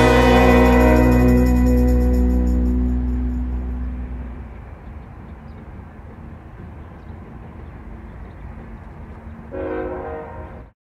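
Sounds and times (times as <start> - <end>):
loud chord of steady tones: 0.0 - 4.7
diesel locomotive rumble: 0.0 - 10.7.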